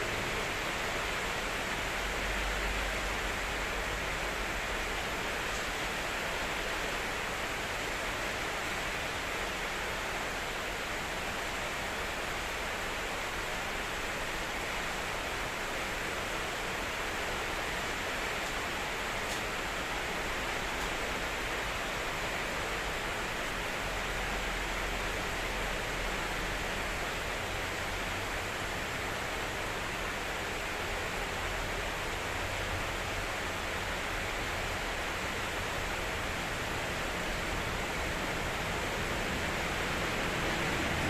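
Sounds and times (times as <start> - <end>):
heavy rain pouring: 0.0 - 41.0
strong wind: 37.6 - 41.0.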